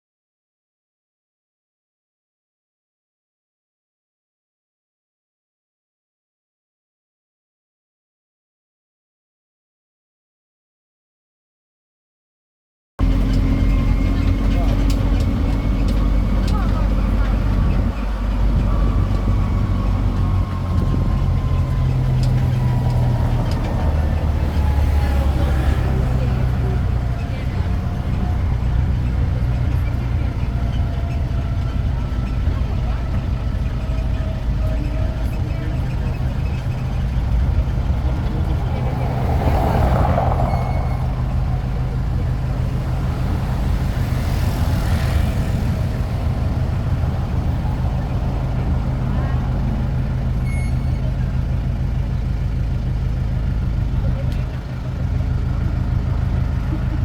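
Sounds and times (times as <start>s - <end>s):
street noise: 13.0s - 57.0s
train engine humming: 13.0s - 57.0s.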